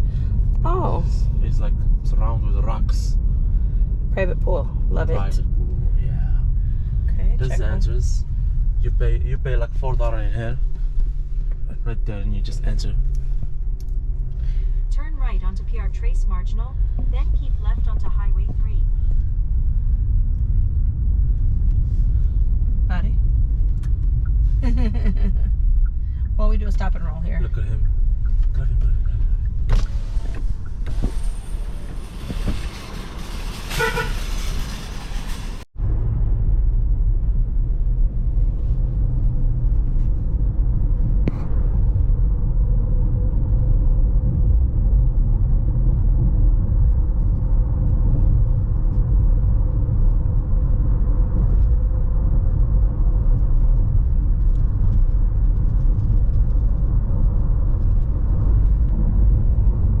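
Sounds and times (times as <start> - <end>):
car road and engine rumble: 0.0 - 60.0
car horn toot: 33.7 - 34.3.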